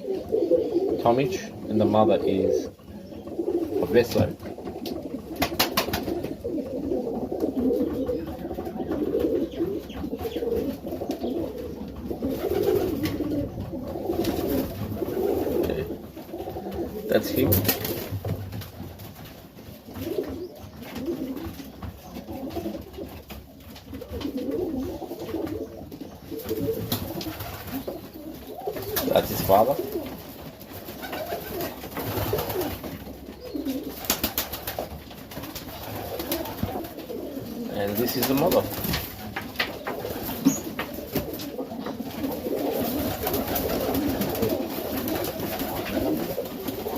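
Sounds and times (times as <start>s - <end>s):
pigeons cooing: 0.0s - 46.9s.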